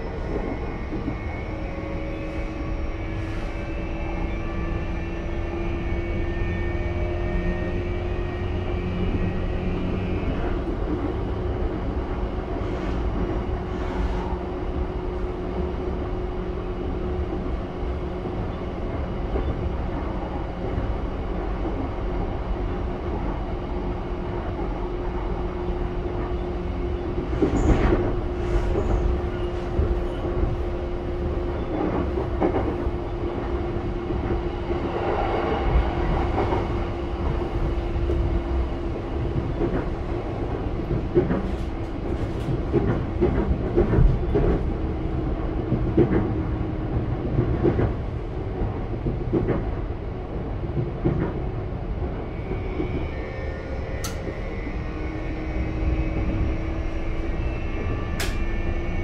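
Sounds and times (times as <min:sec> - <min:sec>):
wheels rumbling on rails: 0:00.0 - 0:59.0
clicks from rails: 0:58.2 - 0:58.4.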